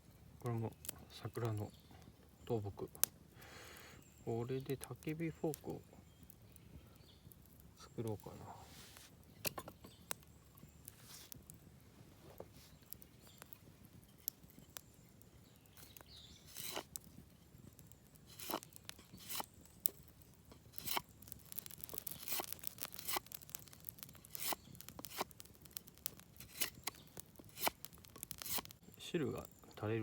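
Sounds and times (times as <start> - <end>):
knife carving wood: 15.8 - 17.1, 17.8 - 28.8.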